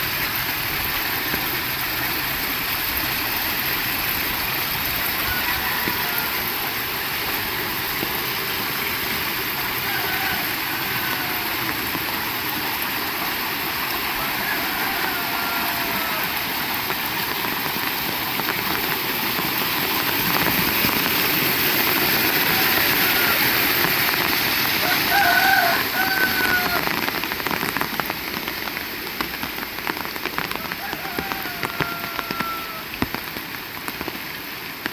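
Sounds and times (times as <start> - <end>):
heavy rain: 0.0 - 34.9
faint rooster crowing: 5.0 - 6.7, 9.7 - 11.9, 14.2 - 16.4, 22.3 - 23.7, 24.8 - 27.0, 30.5 - 32.9.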